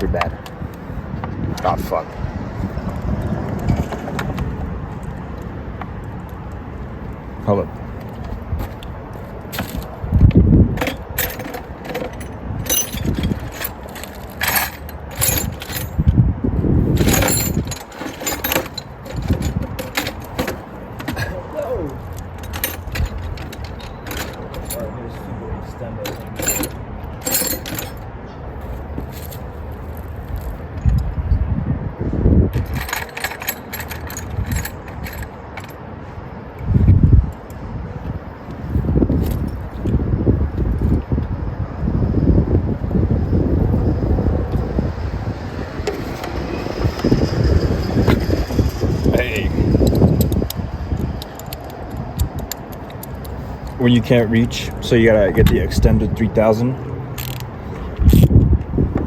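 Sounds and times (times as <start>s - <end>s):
low rumbling bumps: 0.0s - 35.8s, 36.6s - 59.0s
dull bumps and rustling: 7.8s - 25.2s
metallic clinks of hand tools: 10.8s - 16.0s, 17.0s - 24.9s, 26.0s - 28.0s
wrench clicking on bolts: 49.8s - 53.8s, 57.1s - 58.3s.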